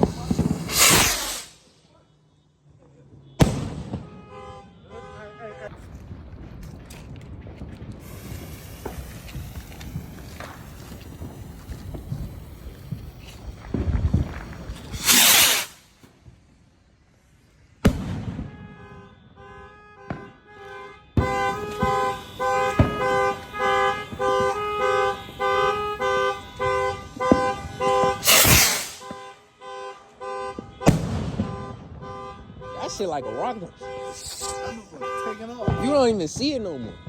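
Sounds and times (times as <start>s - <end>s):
firework bangs: 0.0s - 1.7s, 3.2s - 5.1s, 5.7s - 16.4s, 17.8s - 29.3s, 30.3s - 37.0s
firework hissing rush: 0.0s - 1.7s, 8.0s - 16.0s, 28.0s - 29.1s, 34.0s - 34.9s
car alarm: 1.8s - 5.6s, 18.4s - 28.3s, 29.0s - 37.0s.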